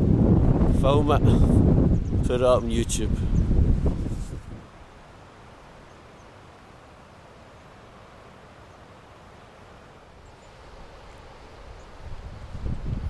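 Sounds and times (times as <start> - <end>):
distant birds chirping: 10.2 - 12.4.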